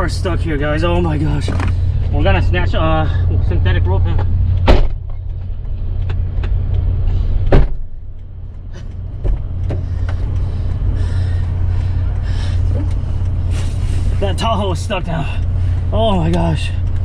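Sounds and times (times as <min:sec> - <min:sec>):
vehicle engine droning: 0:00.0 - 0:17.0
sharp knock: 0:04.6 - 0:05.0.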